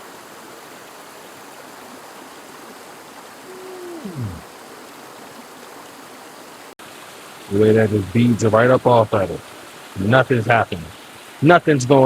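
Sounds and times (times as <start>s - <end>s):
creek water running: 0.0s - 12.0s.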